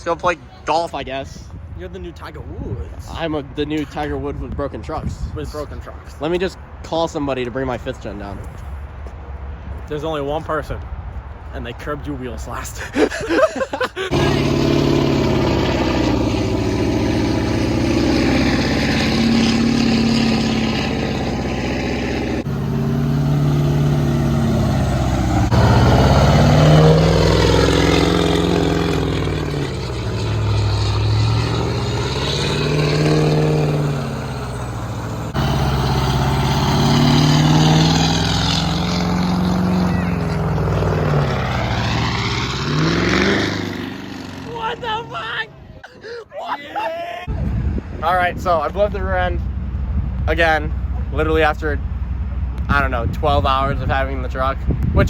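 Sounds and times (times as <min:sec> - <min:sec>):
vehicle engine revving: 0:14.1 - 0:44.9.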